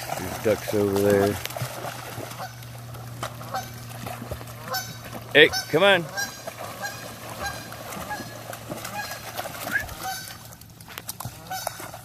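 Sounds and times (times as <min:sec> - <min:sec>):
geese honking: 0:02.2 - 0:10.5, 0:11.3 - 0:12.0.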